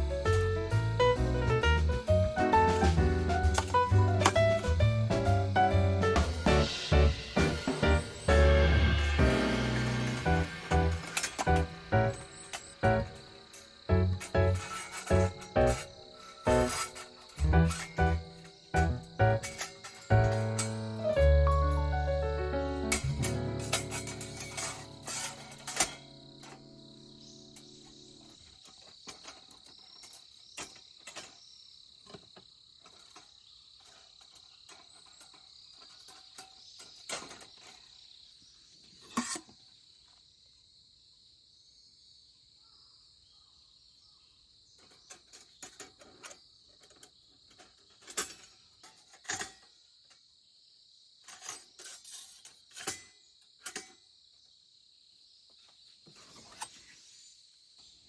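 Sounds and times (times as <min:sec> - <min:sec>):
cooking utensils clinking: 0:02.7 - 0:04.8, 0:06.4 - 0:26.6
crickets trilling: 0:07.6 - 0:58.0.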